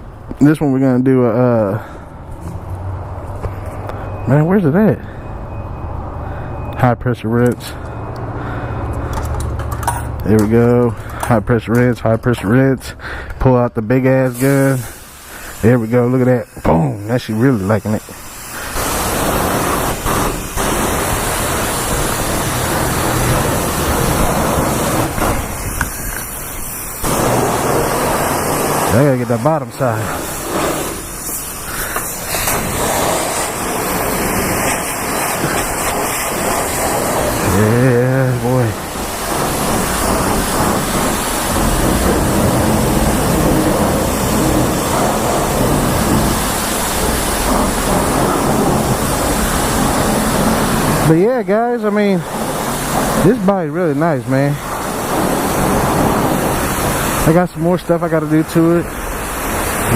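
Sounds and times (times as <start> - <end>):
pressure washer spraying water: 13.9 - 59.9.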